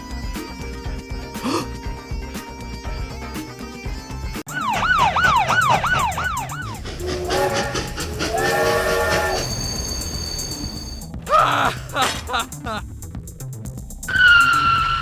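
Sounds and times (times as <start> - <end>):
police siren wailing: 4.5 - 11.0, 14.1 - 15.0
held horn blasts: 4.5 - 11.2.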